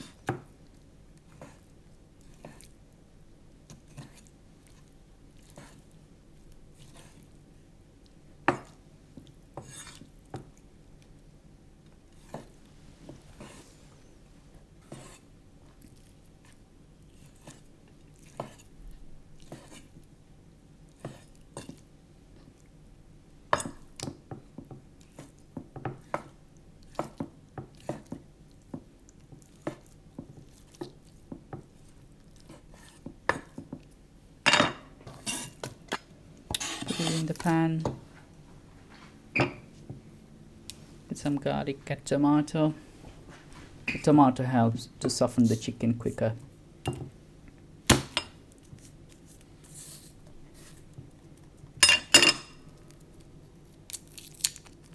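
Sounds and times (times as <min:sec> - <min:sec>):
knife on chopping board: 0:09.6 - 0:10.1, 0:36.5 - 0:37.5
bowls and utensils handled: 0:34.5 - 0:40.0, 0:51.8 - 0:52.6.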